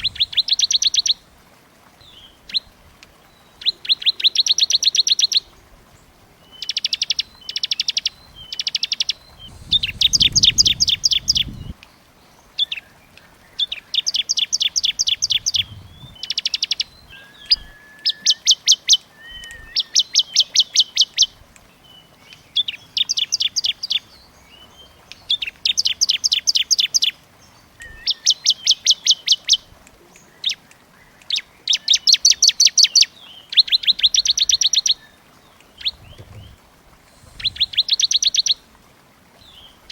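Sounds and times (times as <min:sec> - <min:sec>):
songbird trilling chips: 0:13.6 - 0:21.2, 0:37.2 - 0:38.6.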